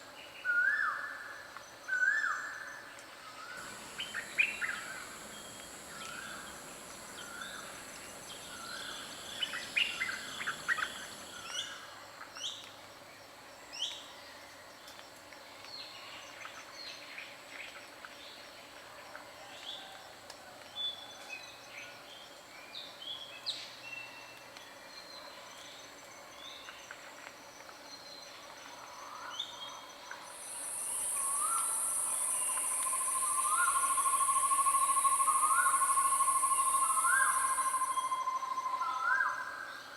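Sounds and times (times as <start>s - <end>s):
faint insect trilling: 3.6s - 11.6s, 30.2s - 39.4s
high-pitched insect buzz: 3.6s - 11.6s, 30.3s - 38.6s
forest birds chirping: 3.6s - 11.7s, 30.2s - 39.9s.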